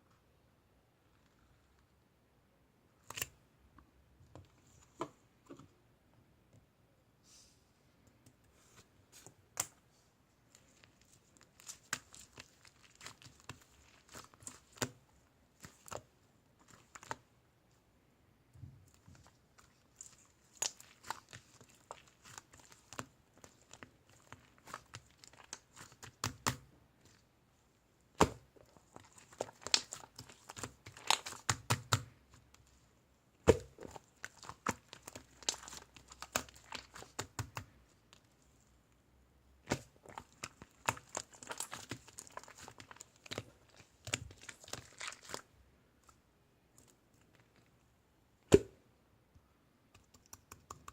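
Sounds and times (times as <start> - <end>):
slime popping and crackling: 19.9 - 26.7, 28.2 - 32.1, 33.5 - 37.7, 39.6 - 45.4.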